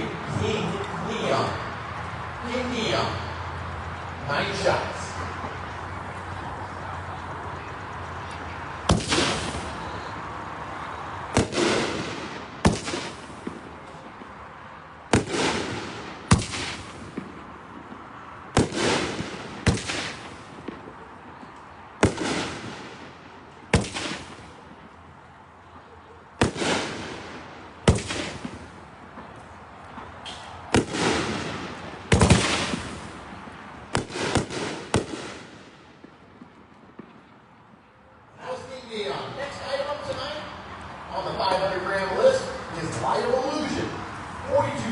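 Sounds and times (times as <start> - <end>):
fireworks booming: 8.9 - 10.1, 11.3 - 14.4, 15.0 - 25.0, 26.4 - 37.4.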